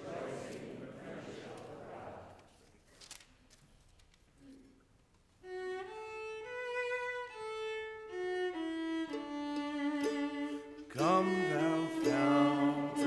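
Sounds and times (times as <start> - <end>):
violin playing slow hymn melody: 5.4 - 13.0.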